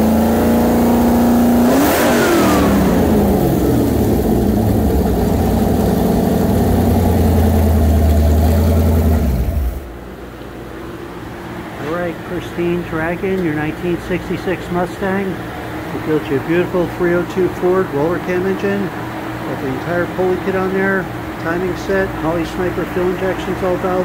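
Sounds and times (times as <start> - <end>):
car engine revving and idling: 0.0 - 24.0.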